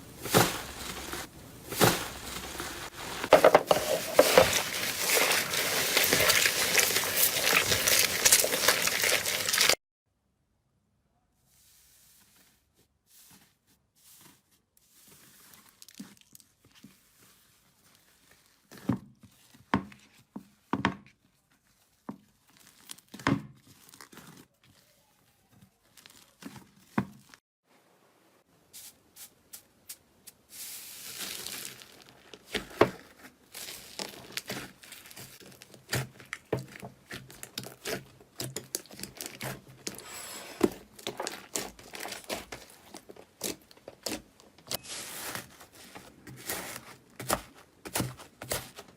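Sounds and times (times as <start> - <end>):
crunchy slime crackling: 0.3 - 9.8, 22.3 - 27.0, 31.0 - 40.0, 40.7 - 48.8.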